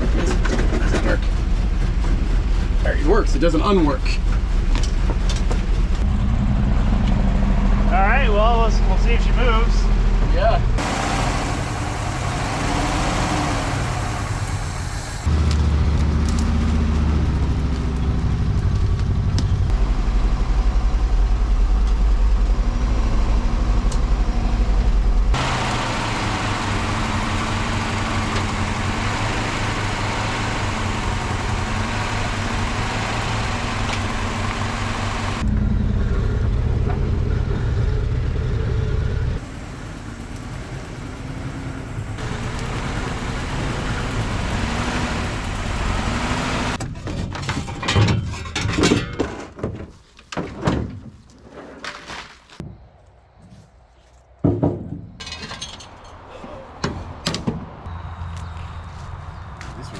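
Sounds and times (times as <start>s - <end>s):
dump truck engine running: 0.0s - 46.8s.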